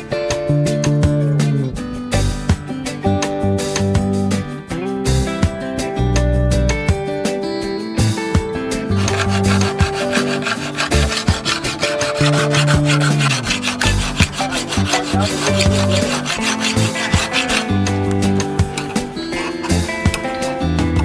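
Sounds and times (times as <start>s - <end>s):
hand rasp filing strokes: 8.9s - 20.7s.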